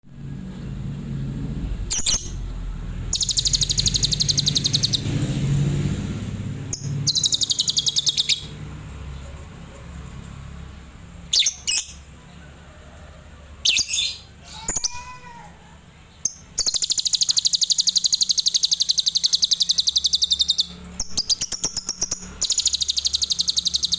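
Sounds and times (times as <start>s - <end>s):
low rumble: 0.0s - 9.3s
lovebird trilling: 3.1s - 5.1s, 6.7s - 8.5s, 16.2s - 23.9s.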